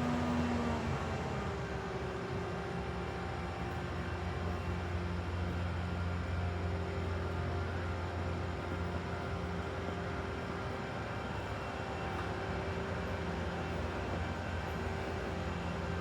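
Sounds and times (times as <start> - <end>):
diesel engine droning: 0.0 - 8.8.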